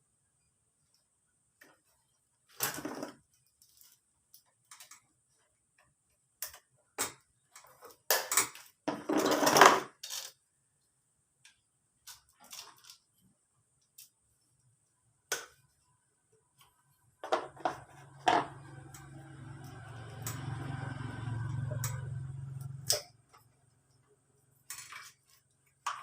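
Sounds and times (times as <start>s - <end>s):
tools and metal parts clinking: 7.5s - 10.4s, 12.1s - 13.0s, 24.6s - 25.4s.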